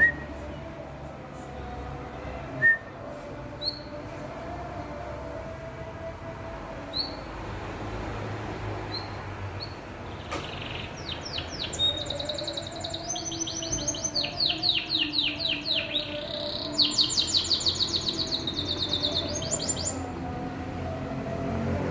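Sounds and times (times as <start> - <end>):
songbird trilling: 9.0 - 20.0.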